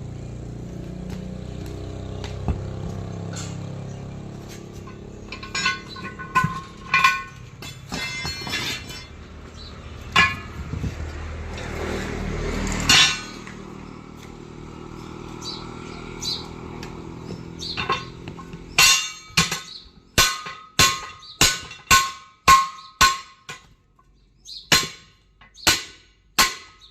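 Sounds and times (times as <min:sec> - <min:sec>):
metallic clangs on steel wheel rim: 0:03.2 - 0:11.8, 0:12.6 - 0:13.8, 0:16.7 - 0:26.9.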